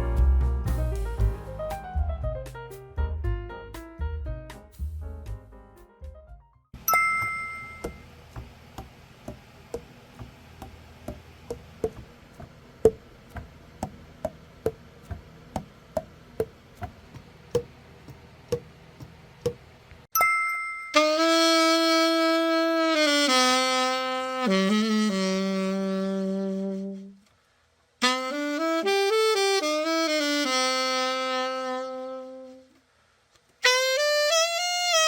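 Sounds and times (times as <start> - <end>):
bright chime: 6.8 - 8.0, 20.2 - 21.0.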